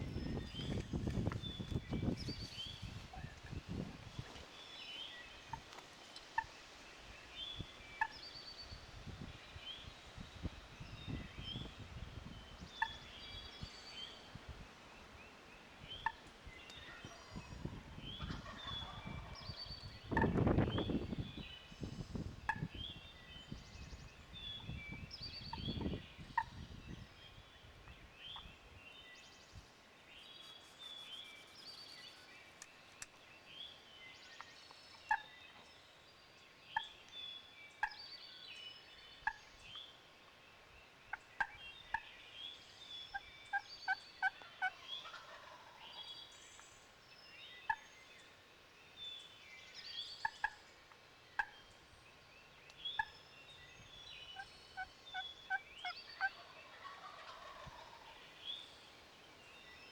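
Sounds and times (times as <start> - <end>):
wind buffeting microphone: 0.0 - 4.4, 8.8 - 13.1, 16.9 - 28.6
turkeys gobbling: 16.9 - 20.4, 44.2 - 46.0, 54.4 - 58.4.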